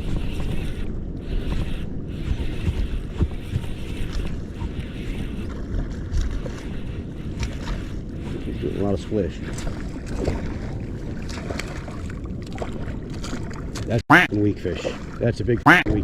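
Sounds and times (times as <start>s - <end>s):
water sloshing at shoreline: 0.0s - 16.0s
wind rumbling on microphone: 0.0s - 16.0s.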